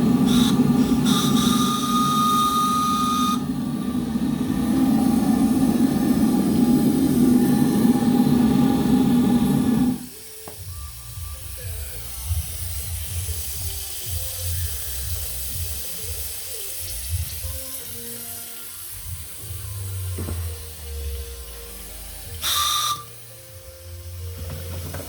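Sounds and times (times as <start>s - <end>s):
machine running with held tones: 0.0s - 11.4s.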